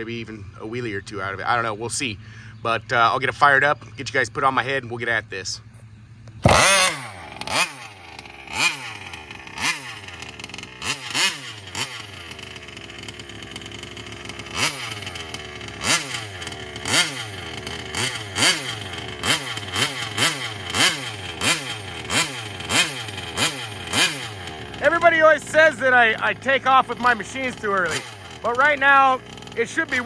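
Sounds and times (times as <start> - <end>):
two-stroke engine idling and revving: 0.0 - 30.0.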